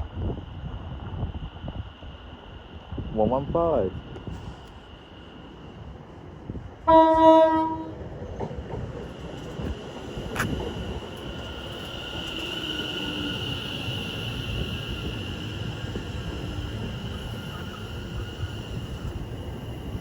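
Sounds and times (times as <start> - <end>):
high electric train whine: 0.0 - 20.0
train horn note: 6.8 - 8.0.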